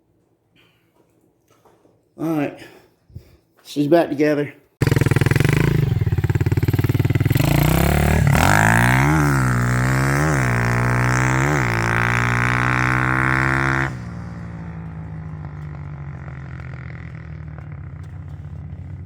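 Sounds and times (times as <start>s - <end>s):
motorbike engine revving: 4.8s - 19.0s.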